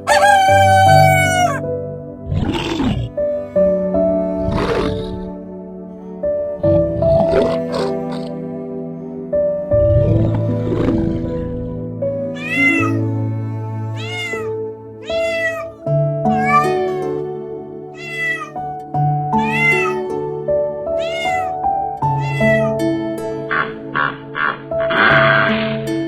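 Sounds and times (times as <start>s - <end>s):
cat meowing: 0.1s - 1.6s, 2.3s - 3.2s, 4.3s - 5.4s, 12.4s - 17.1s, 17.9s - 18.7s, 19.4s - 20.1s, 21.0s - 22.8s.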